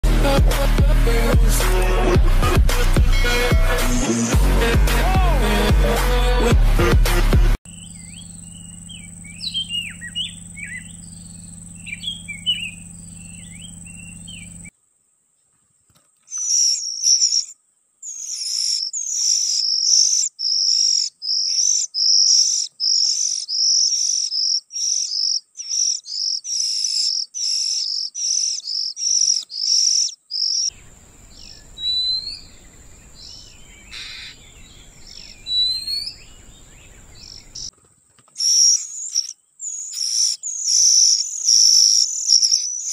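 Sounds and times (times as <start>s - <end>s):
birds chirping: 7.6s - 14.7s, 16.1s - 42.9s
low hum: 7.7s - 14.7s
rapid repeated high bird calls: 7.7s - 14.7s, 16.2s - 37.7s, 38.3s - 42.9s
rising bird calls: 7.7s - 14.7s, 16.3s - 37.7s, 38.4s - 42.9s.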